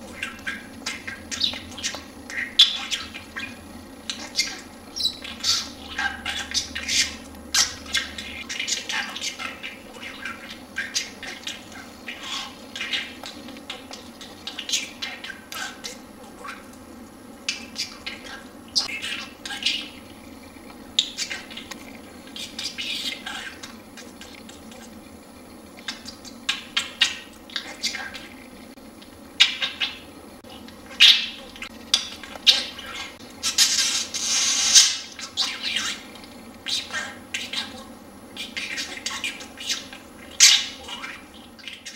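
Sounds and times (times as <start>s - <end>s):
budgerigar chattering and warbling: 0.1s - 15.8s.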